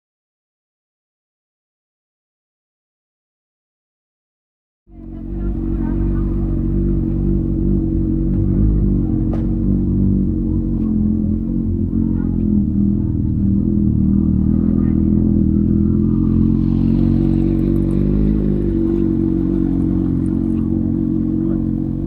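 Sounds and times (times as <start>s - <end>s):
motorcycle engine running: 4.9s - 22.0s.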